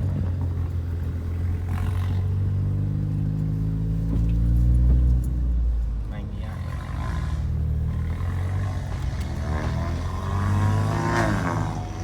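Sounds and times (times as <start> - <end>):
vehicle engine accelerating: 6.9 - 12.0.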